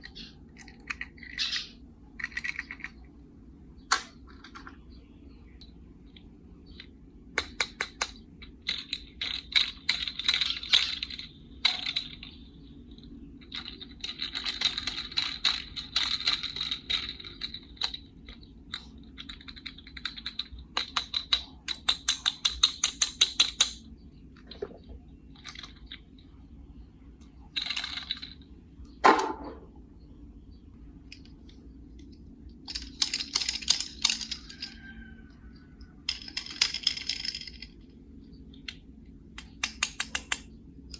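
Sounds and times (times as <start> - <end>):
toy cars clicking and rattling: 0.0 - 3.0, 6.8 - 23.8, 24.4 - 26.0, 27.5 - 28.5, 32.0 - 35.1, 36.0 - 38.0, 39.4 - 40.9.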